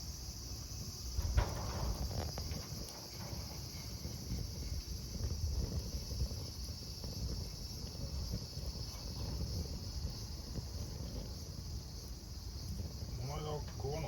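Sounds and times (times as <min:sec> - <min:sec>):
fire crackles: 0:00.0 - 0:14.0
insects chirping: 0:00.0 - 0:14.0
wood fire rumbling: 0:00.0 - 0:14.0.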